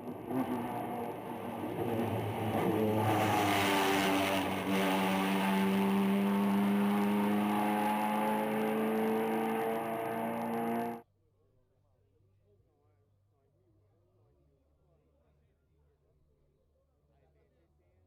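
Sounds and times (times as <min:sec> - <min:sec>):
race car engine accelerating: 0:00.0 - 0:11.0.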